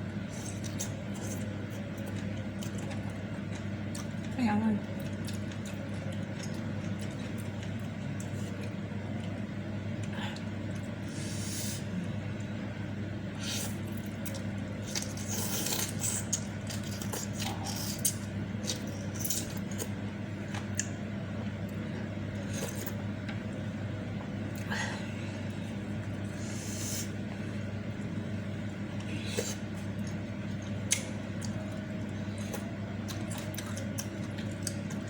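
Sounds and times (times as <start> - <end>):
steady low hum: 0.0 - 35.0
chewing and slurping: 13.4 - 20.0, 29.0 - 35.0.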